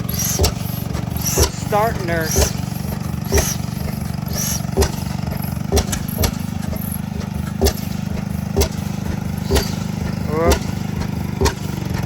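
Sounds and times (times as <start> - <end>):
antique engine firing bangs: 0.0 - 12.0
old engines droning: 0.0 - 12.0.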